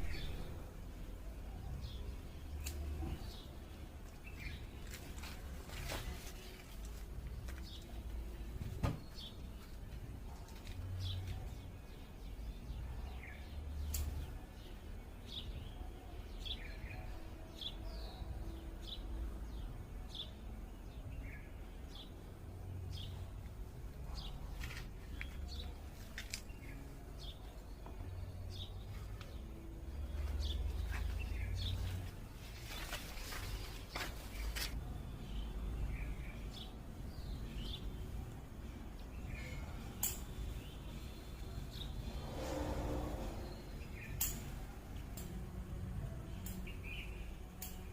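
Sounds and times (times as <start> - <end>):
small birds chirping: 0.0 - 42.4, 46.0 - 47.9
low rumble: 41.6 - 44.1.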